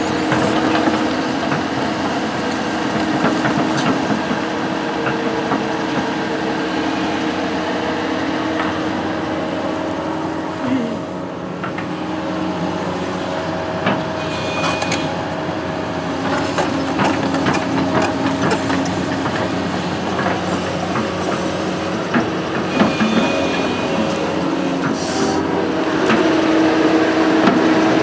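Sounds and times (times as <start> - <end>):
machine clanks and knocks: 0.0 - 4.4, 13.8 - 25.0
construction machine engine running: 0.0 - 28.0.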